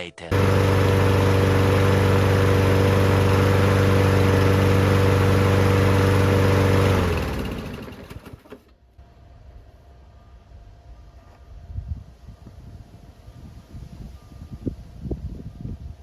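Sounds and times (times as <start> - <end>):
engine spinning down: 0.3 - 8.8
lawn mower engine running: 0.3 - 9.0.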